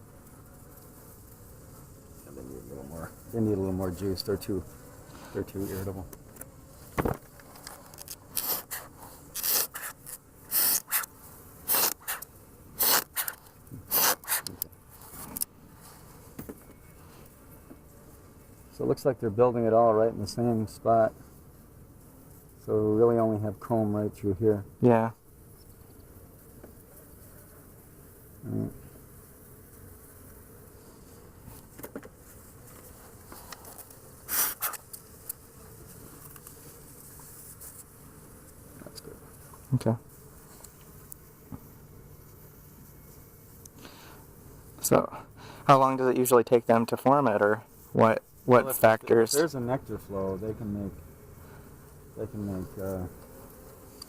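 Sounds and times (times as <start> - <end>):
bees buzzing: 0.0 - 54.0
short scrape: 8.3 - 11.1, 34.3 - 34.8
bellows smoker puffing air: 8.3 - 16.1, 33.3 - 34.8, 43.7 - 44.3, 45.2 - 45.7.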